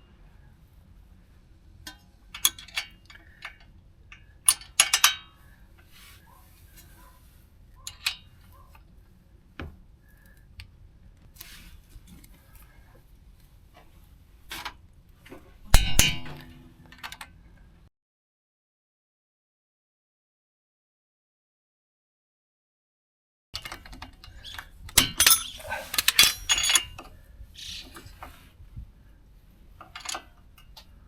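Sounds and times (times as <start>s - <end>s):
metal tools clanking on metal: 15.7s - 16.8s, 25.0s - 27.1s, 29.8s - 30.3s
metallic clank with ring: 15.7s - 16.8s, 25.0s - 27.0s.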